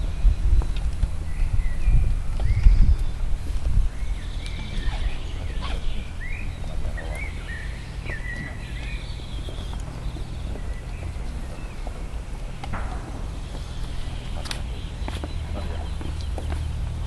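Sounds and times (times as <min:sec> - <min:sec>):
small birds chirping: 0:00.0 - 0:17.0
steady low rumble: 0:00.0 - 0:17.0.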